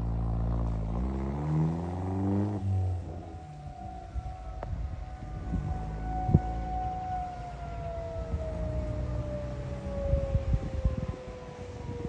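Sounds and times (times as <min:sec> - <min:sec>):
vehicle engine revving: 0:00.0 - 0:10.2
civil defense siren steady tone: 0:00.0 - 0:12.0.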